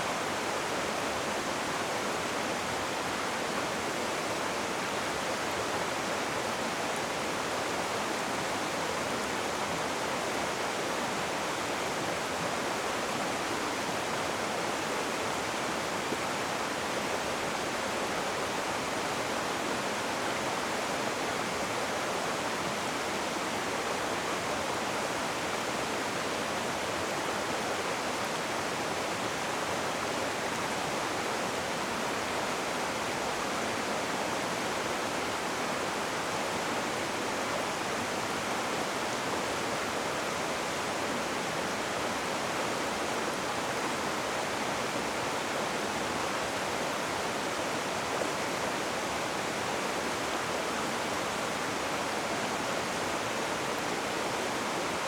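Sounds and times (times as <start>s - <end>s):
river water rushing over rocks: 0.0s - 55.0s.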